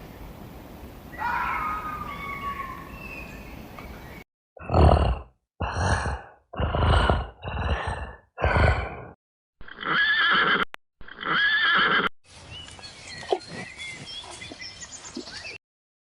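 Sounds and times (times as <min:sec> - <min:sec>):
horse snorting blasts: 0:04.6 - 0:09.2
horse whinnying: 0:09.6 - 0:12.1.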